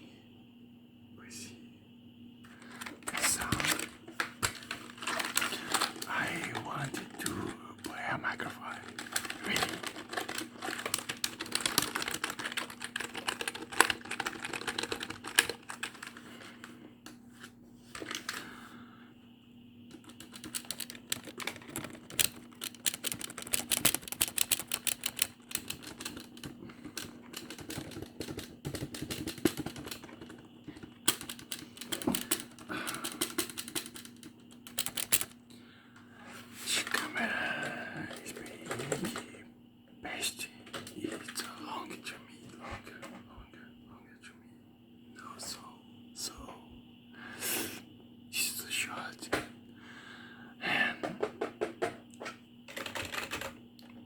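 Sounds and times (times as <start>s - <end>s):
typing on computer keyboard: 4.5s - 16.2s, 19.9s - 35.4s, 52.7s - 54.0s.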